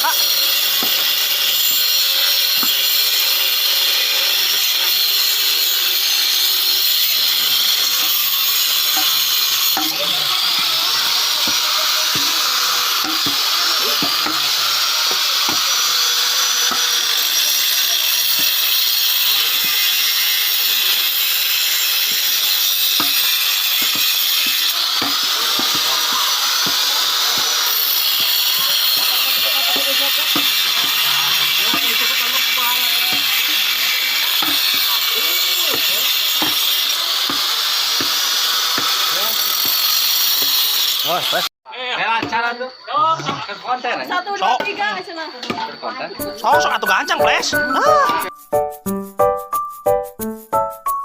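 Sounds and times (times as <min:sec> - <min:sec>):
bone saw cutting bone: 0:00.0 - 0:03.4, 0:06.0 - 0:41.2.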